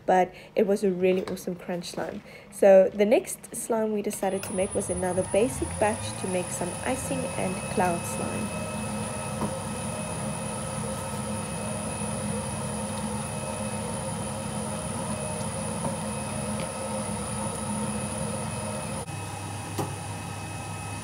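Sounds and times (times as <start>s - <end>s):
mixer motor humming: 4.2s - 21.0s.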